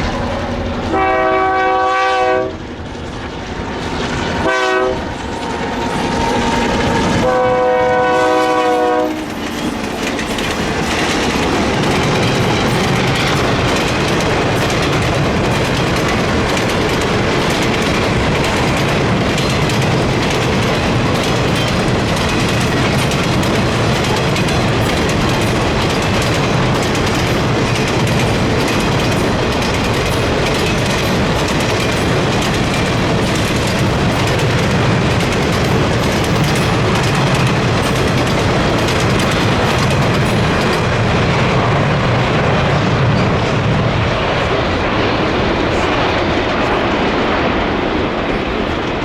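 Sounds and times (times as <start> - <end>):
wheels clacking over rail joints: 0.0 - 49.0
locomotive air horn blasts: 0.2 - 2.6, 4.4 - 5.1, 7.2 - 9.3.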